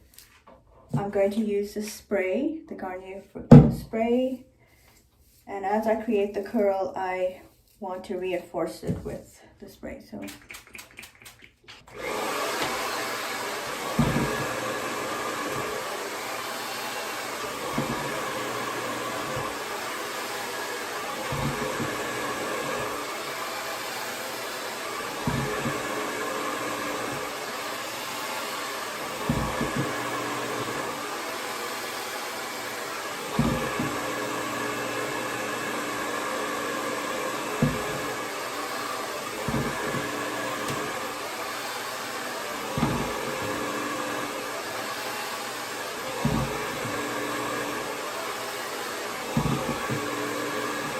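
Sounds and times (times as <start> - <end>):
hair dryer running: 11.9 - 50.9.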